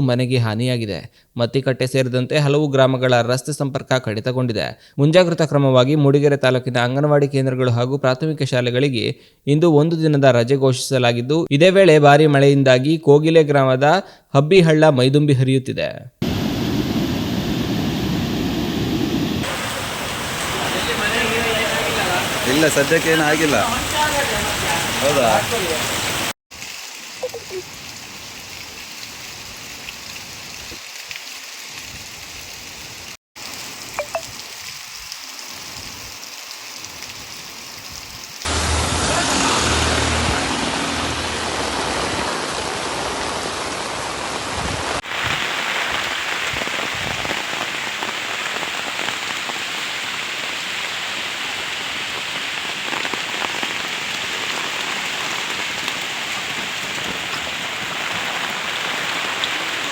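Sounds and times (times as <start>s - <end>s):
heavy rain hissing: 16.2s - 59.9s.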